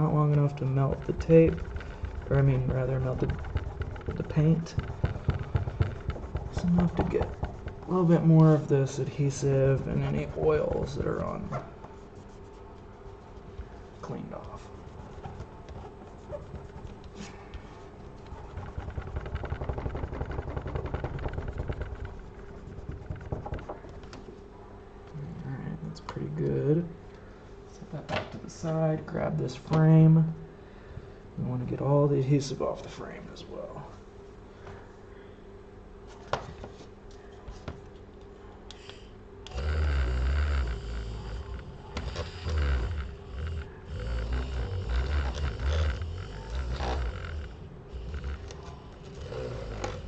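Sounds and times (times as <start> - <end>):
scratchy rubbing on plastic: 0.0 - 24.4, 39.5 - 50.0.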